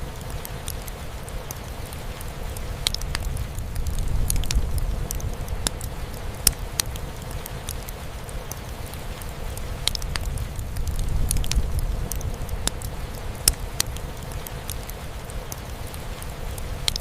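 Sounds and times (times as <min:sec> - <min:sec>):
rain pattering: 0:00.0 - 0:17.0
wood fire crackling and popping: 0:00.0 - 0:17.0
steady low rumble: 0:02.5 - 0:08.5, 0:09.3 - 0:14.5.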